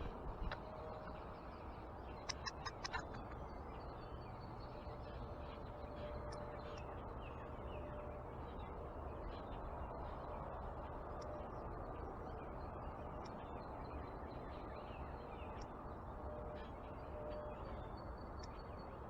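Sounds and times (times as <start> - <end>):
low outdoor rumble: 0.0 - 19.0
small birds calling: 2.1 - 6.9.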